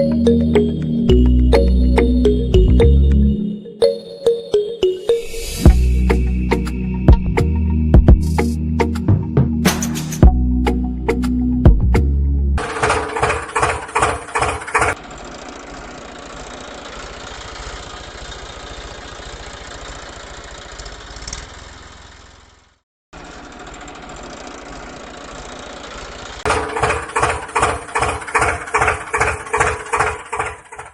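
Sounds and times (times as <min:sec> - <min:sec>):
engine running steadily: 0:00.0 - 0:03.4, 0:05.7 - 0:30.9
music with strong beat: 0:04.8 - 0:12.1.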